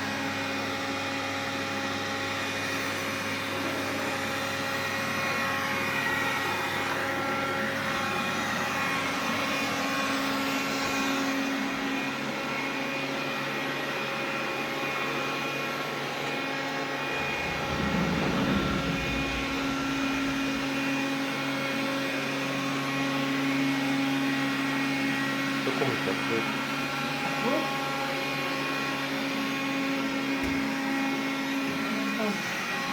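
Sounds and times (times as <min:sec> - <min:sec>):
vacuum cleaner humming: 0:00.0 - 0:32.9
deeper rumble: 0:17.0 - 0:21.3.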